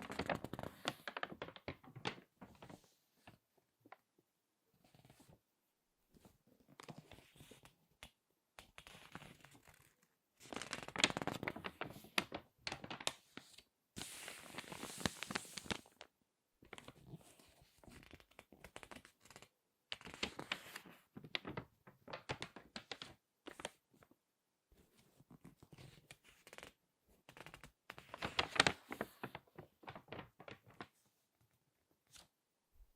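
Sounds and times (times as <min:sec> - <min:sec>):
page turning: 0:00.0 - 0:02.9, 0:08.7 - 0:16.0, 0:17.8 - 0:23.8, 0:25.4 - 0:31.0, 0:32.1 - 0:32.3
magazine pages crinkling: 0:00.1 - 0:02.8, 0:10.5 - 0:13.2, 0:14.0 - 0:16.0, 0:18.1 - 0:23.7, 0:27.4 - 0:30.9.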